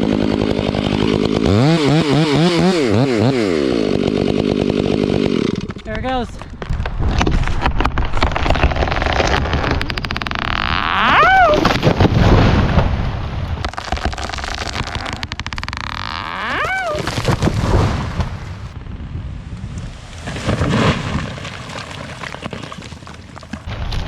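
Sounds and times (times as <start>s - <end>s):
rapid wood snapping: 0.0s - 18.5s, 19.8s - 24.0s
tree trunk creaking: 0.0s - 24.0s
low rumble: 17.3s - 22.0s.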